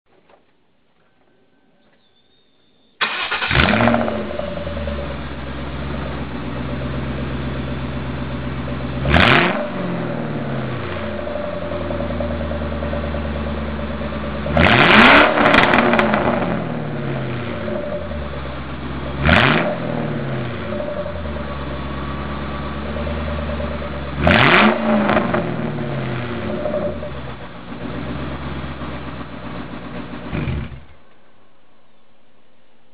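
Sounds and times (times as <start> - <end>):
car engine idling and revving: 3.1 - 31.3.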